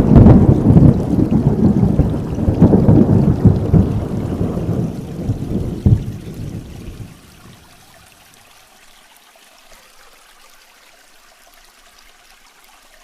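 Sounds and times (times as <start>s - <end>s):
rolling thunder: 0.0s - 7.6s
rain: 0.0s - 13.0s.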